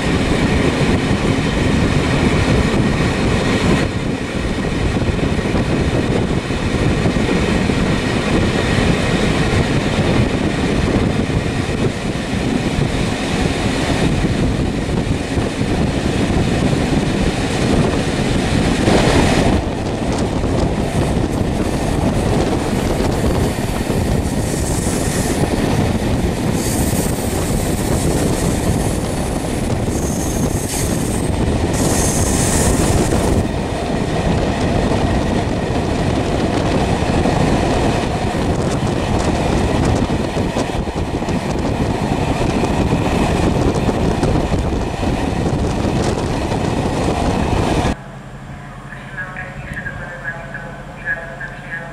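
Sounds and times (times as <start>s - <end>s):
vehicle rumbling: 43.5s - 51.9s.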